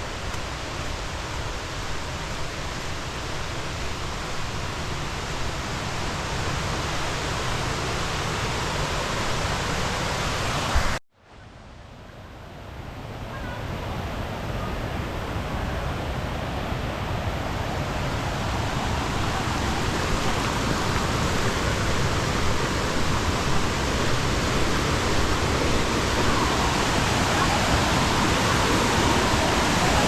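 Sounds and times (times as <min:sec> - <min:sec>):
waterfall roaring: 0:13.3 - 0:30.0.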